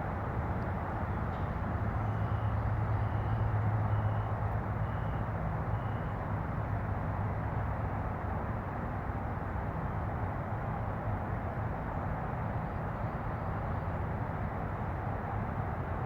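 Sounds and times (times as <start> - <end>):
background traffic noise: 0.0 - 16.0.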